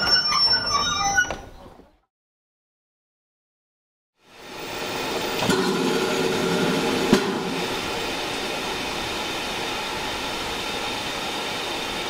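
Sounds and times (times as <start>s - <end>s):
train running noise: 4.2s - 12.0s.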